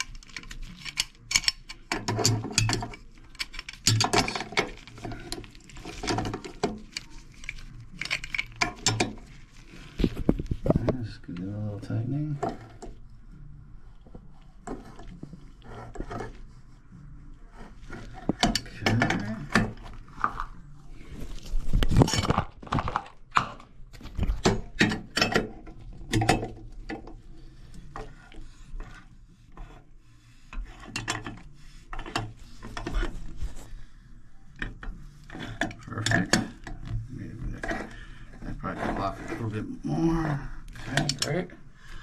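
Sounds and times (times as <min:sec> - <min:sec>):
metal tools scraping and clicking: 0:00.0 - 0:09.4, 0:40.7 - 0:41.4.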